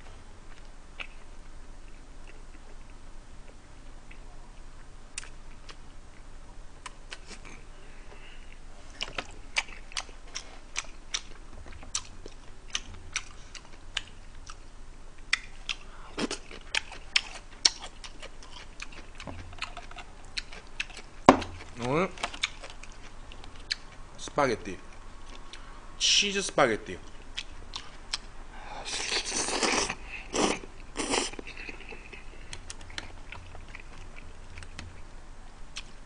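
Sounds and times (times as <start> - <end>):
chewing and lip-smacking: 8.5 - 24.0, 24.9 - 25.7, 27.0 - 28.3, 28.9 - 35.0, 35.7 - 36.0.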